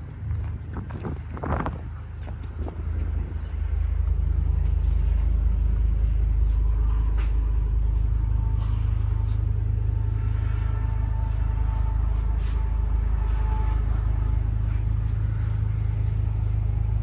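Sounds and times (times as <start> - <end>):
truck engine rumbling: 0.0 - 17.0.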